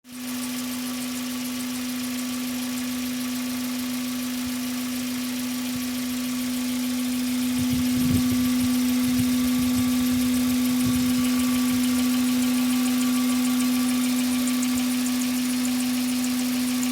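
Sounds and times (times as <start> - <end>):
car engine humming: 7.2 - 16.2.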